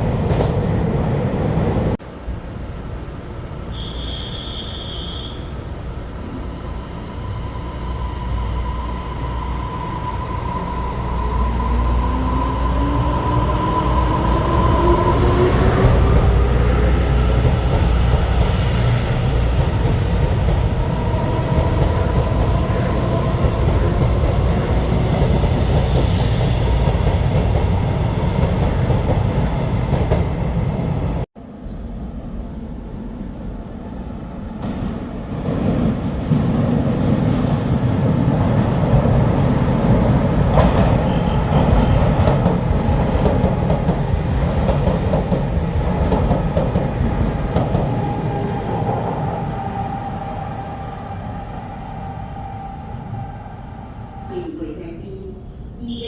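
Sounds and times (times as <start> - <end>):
train wheels on rails: 0.0 - 31.3, 34.4 - 54.3
train whine rising in pitch: 6.4 - 31.2, 39.8 - 54.5.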